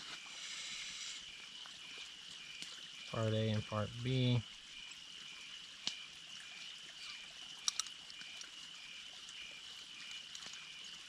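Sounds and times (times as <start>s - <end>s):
frogs trilling: 0.0s - 11.0s
sharp clicks: 7.6s - 8.0s.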